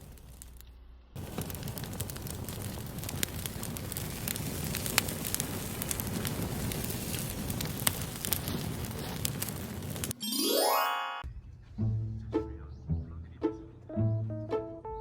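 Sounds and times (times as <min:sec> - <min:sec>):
fire crackling: 0:00.0 - 0:10.9.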